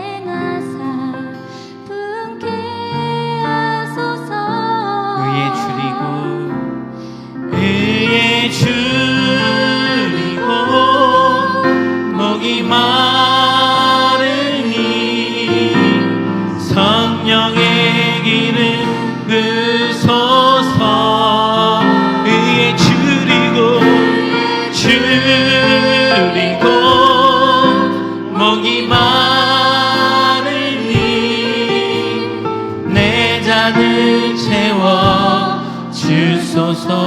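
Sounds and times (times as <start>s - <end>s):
band playing worship song: 5.3s - 37.0s.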